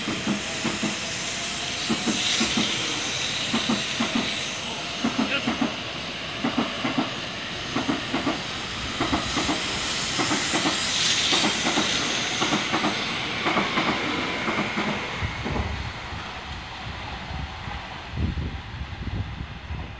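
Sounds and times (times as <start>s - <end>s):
train wheels clicking over track: 0.0s - 16.7s
steady rushing hiss: 0.0s - 19.9s.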